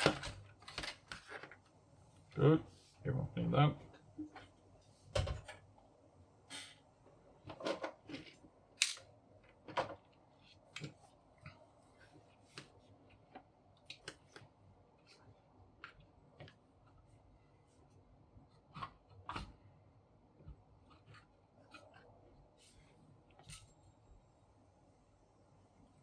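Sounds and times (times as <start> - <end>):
small parts clicking and tapping: 8.8 - 9.1.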